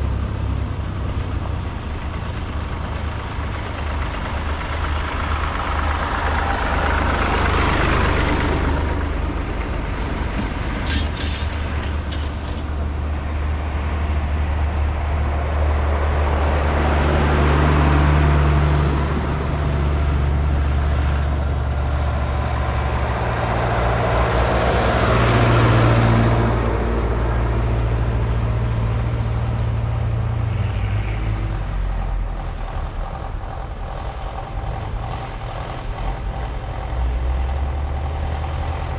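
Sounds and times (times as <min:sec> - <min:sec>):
tractor engines driving past: 0:00.0 - 0:38.9
rattling clicks: 0:10.3 - 0:12.8.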